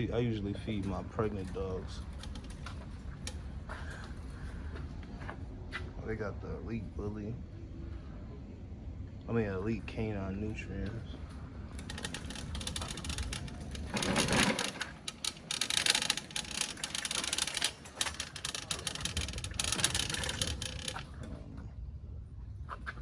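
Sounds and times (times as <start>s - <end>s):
rapid rattling and crackling: 11.8s - 21.3s.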